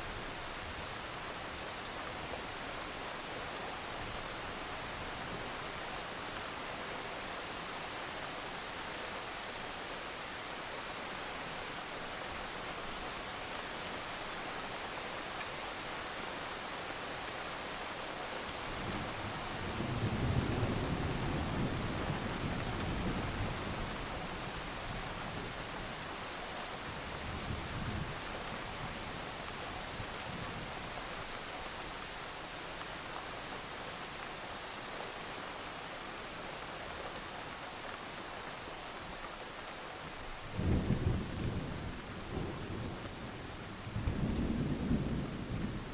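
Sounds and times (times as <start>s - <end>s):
steady rain falling: 0.0s - 45.9s
low rumble of thunder: 18.9s - 26.0s, 40.5s - 45.9s.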